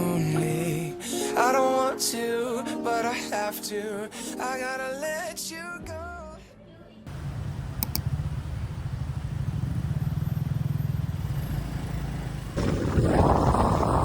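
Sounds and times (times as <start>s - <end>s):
vehicle engine rumbling: 7.1s - 14.0s
short clicks: 7.8s - 8.1s
rushing noise: 12.5s - 14.0s.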